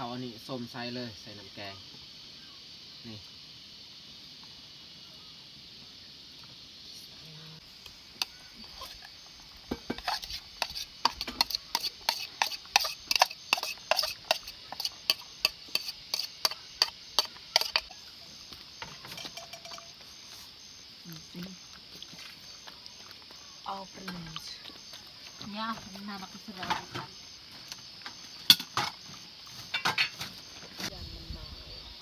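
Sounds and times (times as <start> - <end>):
spoon clinking against a pot: 19.2 - 19.9.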